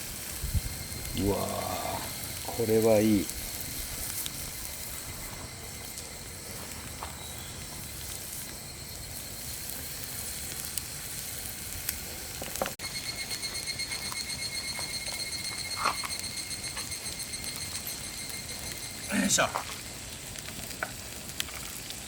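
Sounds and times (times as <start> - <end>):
food sizzling on griddle: 0.0 - 22.0.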